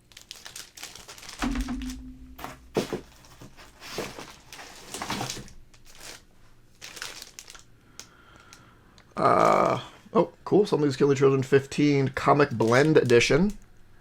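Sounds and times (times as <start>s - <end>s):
packaging crinkling and rustling: 0.0s - 9.6s, 12.5s - 13.6s.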